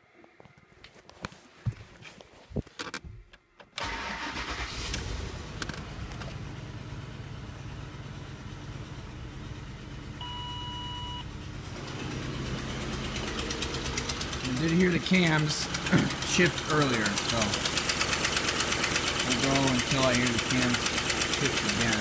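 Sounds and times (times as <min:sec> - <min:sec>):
car engine starting and idling: 0:02.8 - 0:22.0
electronic beep: 0:10.2 - 0:11.2.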